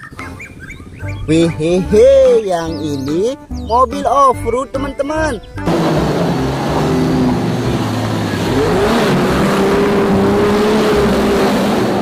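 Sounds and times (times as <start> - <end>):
car engine revving: 5.5 - 12.0.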